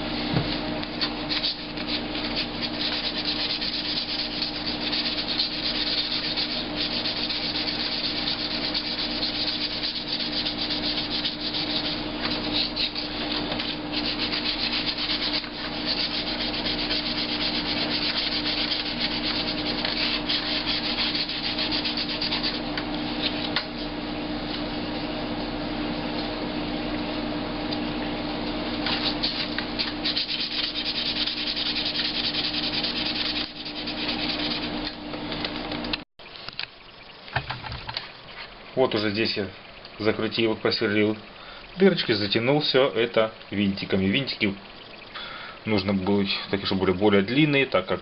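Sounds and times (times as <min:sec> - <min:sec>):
sandpaper rasping on plastic: 0:01.0 - 0:23.6, 0:28.8 - 0:34.9.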